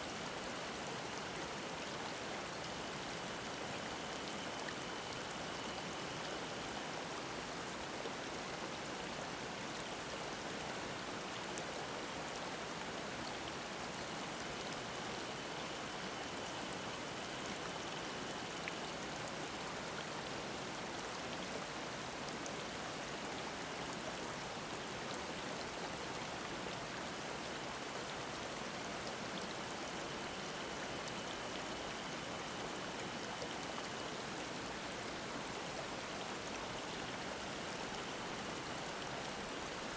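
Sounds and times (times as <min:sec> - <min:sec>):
cicadas buzzing faintly: 0:00.0 - 0:39.9
stream babbling: 0:00.1 - 0:39.9.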